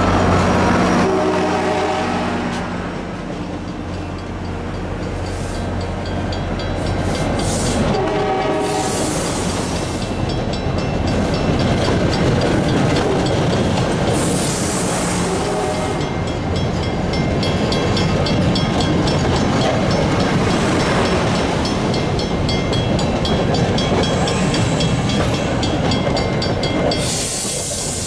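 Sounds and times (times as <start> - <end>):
train horn blast: 0.0 - 2.8, 7.5 - 9.5, 14.7 - 16.0
train wheels rumbling on rails: 0.0 - 28.0
high hissing wheel noise: 5.2 - 6.0, 8.6 - 10.2, 27.0 - 28.0.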